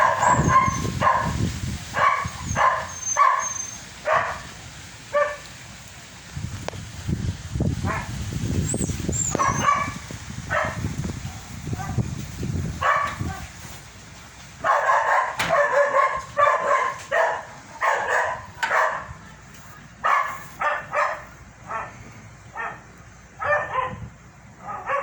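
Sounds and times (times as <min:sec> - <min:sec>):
dog barking: 0:00.0 - 0:04.5, 0:05.1 - 0:05.5, 0:07.8 - 0:08.2, 0:09.4 - 0:12.1, 0:12.8 - 0:13.6, 0:14.6 - 0:19.2, 0:20.0 - 0:25.0.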